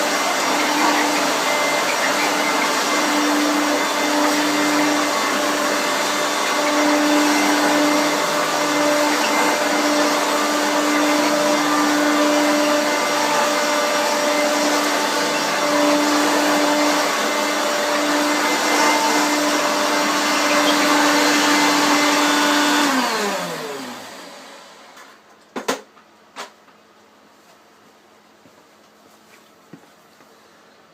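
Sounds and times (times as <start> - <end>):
motor winding down: 0.0 - 24.1
vacuum cleaner motor whine: 0.0 - 25.2.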